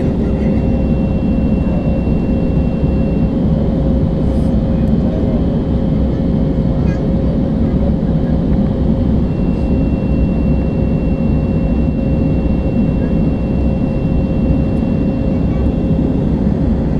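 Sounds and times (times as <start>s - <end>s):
airliner cabin engine rumble: 0.0s - 16.9s
thin high whine: 9.2s - 16.9s.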